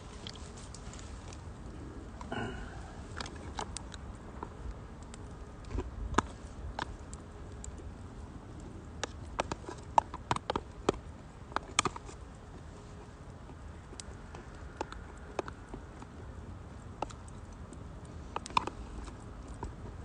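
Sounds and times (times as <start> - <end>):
low steady rumble: 0.0 - 10.0
firewood crackling and popping: 0.0 - 20.0.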